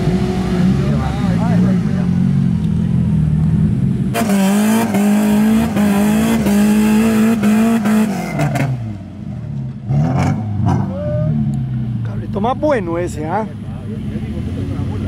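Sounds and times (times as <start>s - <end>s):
engine revving hard: 4.1s - 8.9s, 9.9s - 11.0s.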